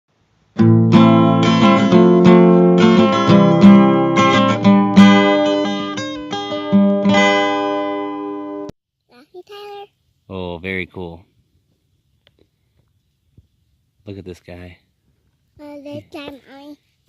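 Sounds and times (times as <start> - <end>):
acoustic guitar strumming: 0.5 - 8.7.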